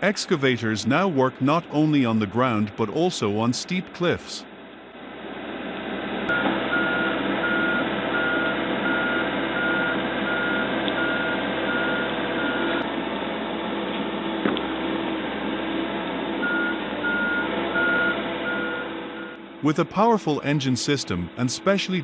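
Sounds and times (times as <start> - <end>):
diesel engine running: 0.0 - 22.0
reversing alarm beeping: 6.3 - 12.8, 16.4 - 19.4.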